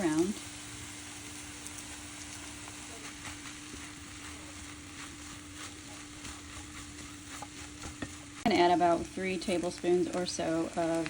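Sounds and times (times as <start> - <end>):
food sizzling in frying pan: 0.0 - 11.0
utensil scraping and tapping pan: 1.6 - 10.2.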